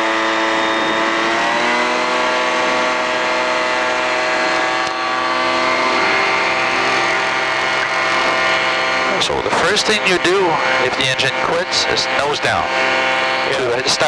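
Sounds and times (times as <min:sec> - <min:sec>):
aircraft engine and propeller: 0:00.0 - 0:14.0.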